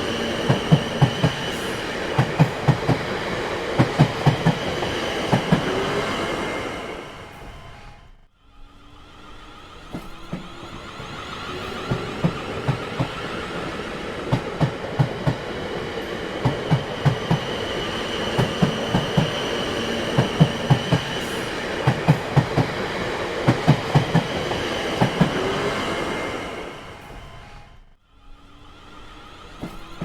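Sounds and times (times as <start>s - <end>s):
train wheels clacking over joints: 0.0s - 5.8s, 9.9s - 25.5s
train rolling rumble: 0.0s - 8.3s, 8.9s - 27.9s.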